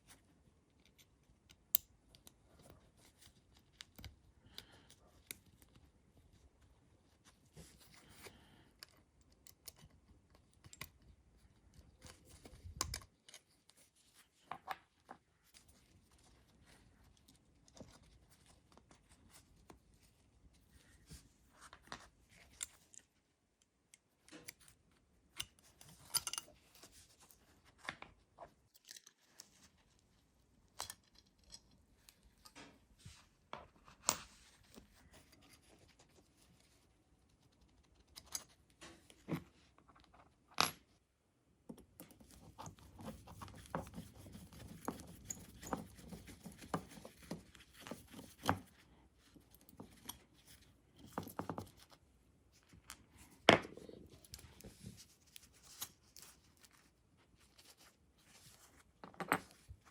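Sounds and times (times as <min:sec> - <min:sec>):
clicks and taps on small metal parts: 0:25.4 - 0:26.6.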